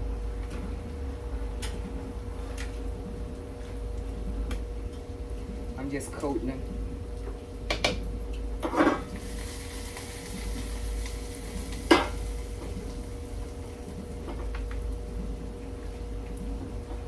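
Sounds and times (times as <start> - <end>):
faint sizzle: 8.7 - 14.9.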